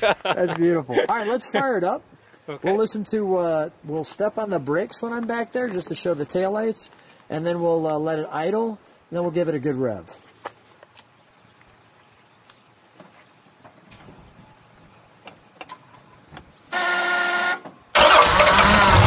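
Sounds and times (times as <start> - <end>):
starter motor whine: 16.8 - 19.0
car engine firing up: 17.4 - 19.0.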